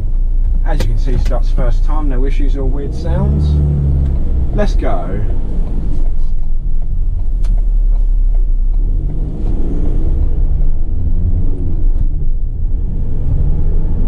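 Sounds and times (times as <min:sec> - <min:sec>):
diesel engine accelerating: 0:00.0 - 0:14.0.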